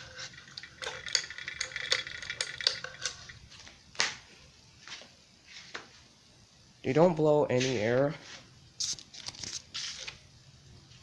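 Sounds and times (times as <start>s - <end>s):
metal chain clicking and clinking: 0.0s - 3.4s.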